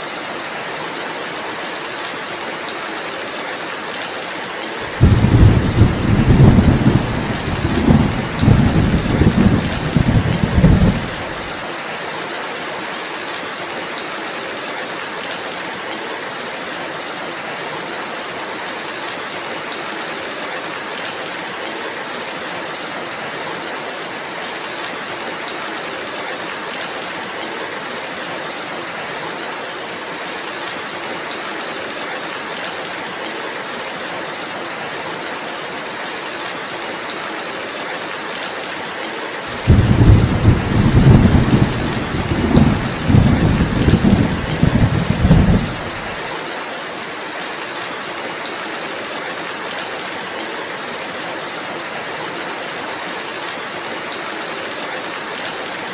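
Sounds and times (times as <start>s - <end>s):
steady rainfall: 0.0s - 55.9s
thunder rumbling: 4.9s - 11.5s, 39.6s - 46.0s.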